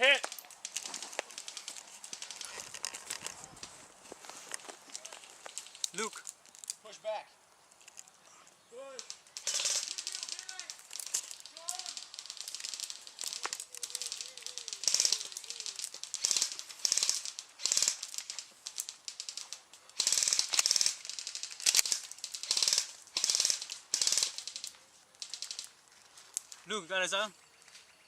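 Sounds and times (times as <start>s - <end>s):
airsoft guns firing bursts: 9.0s - 25.7s.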